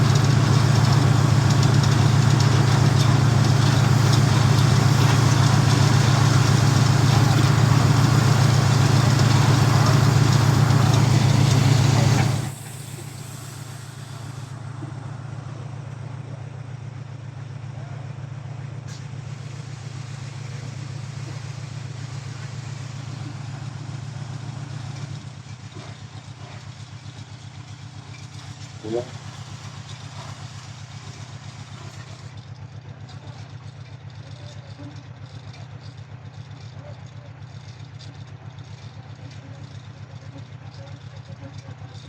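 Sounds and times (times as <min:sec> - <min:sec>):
bus engine running: 0:00.0 - 0:42.0.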